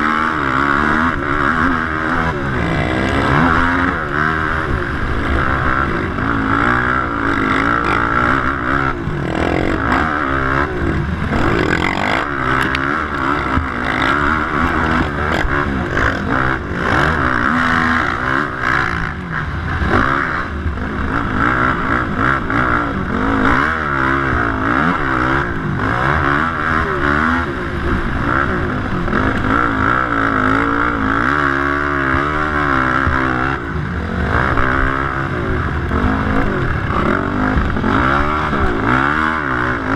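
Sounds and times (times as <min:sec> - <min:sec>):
quad bike engine revving: 0:00.0 - 0:39.9
steady rushing noise: 0:00.0 - 0:39.9.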